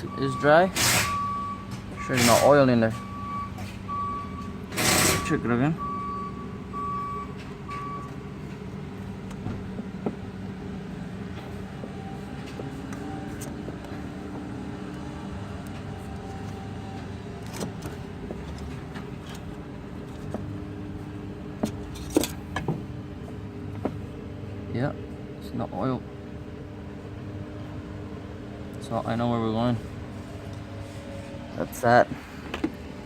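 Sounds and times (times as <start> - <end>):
short beeps: 0.1 - 2.1, 2.9 - 8.2.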